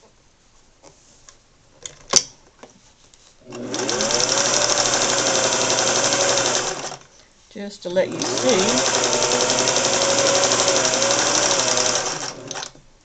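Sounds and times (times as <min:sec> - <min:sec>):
sewing machine motor whine: 0:03.5 - 0:07.0, 0:08.1 - 0:12.8.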